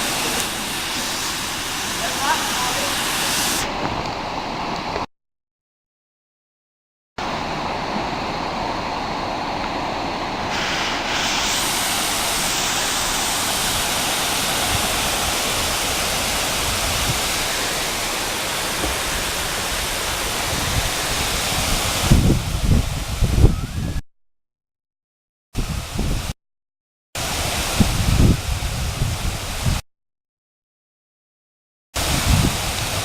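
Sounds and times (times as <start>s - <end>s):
waterfall rushing: 0.0s - 5.0s, 7.2s - 23.1s, 32.0s - 33.0s
low thumps on microphone: 18.8s - 19.1s.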